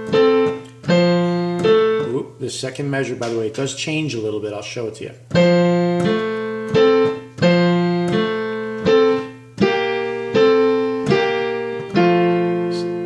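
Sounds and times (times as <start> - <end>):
slow piano melody: 0.0 - 2.3, 5.3 - 13.0.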